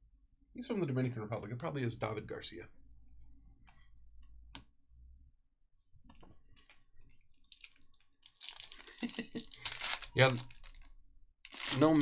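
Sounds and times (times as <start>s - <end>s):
foil wrappers rustling: 7.4s - 12.0s.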